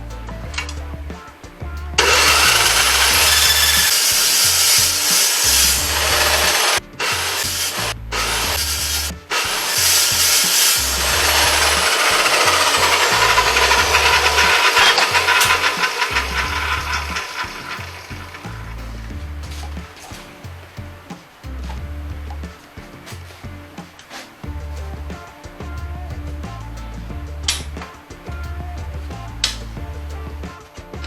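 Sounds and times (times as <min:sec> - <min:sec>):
background music: 0:00.0 - 0:31.0
power tool cutting metal: 0:02.0 - 0:18.7.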